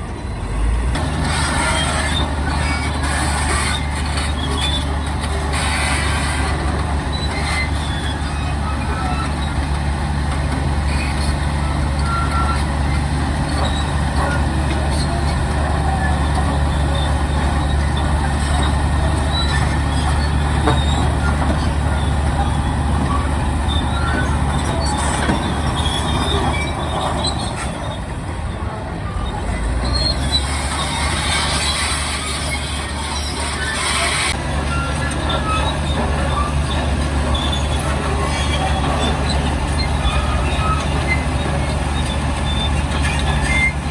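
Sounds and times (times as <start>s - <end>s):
diesel machinery running: 0.0s - 43.9s.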